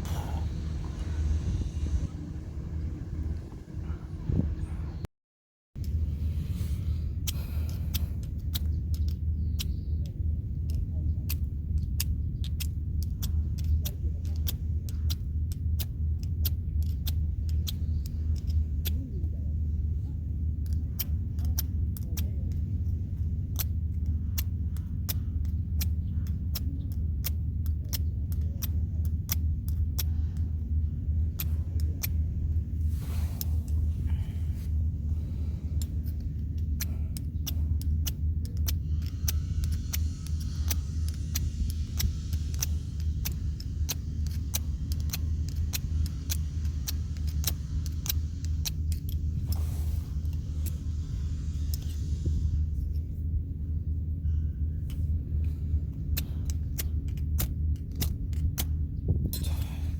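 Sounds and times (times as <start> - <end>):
low rumble: 0.0 - 5.1, 5.8 - 59.9.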